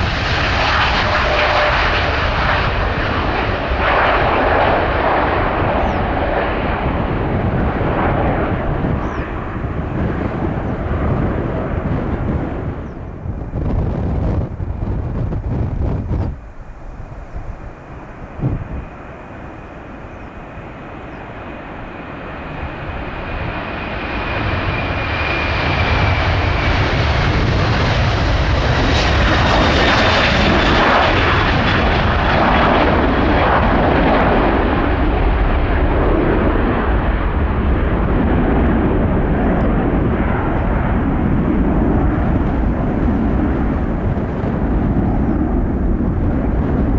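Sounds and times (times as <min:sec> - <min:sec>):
jet airliner taking off: 0:00.0 - 0:46.9
high fan whines: 0:39.0 - 0:46.9.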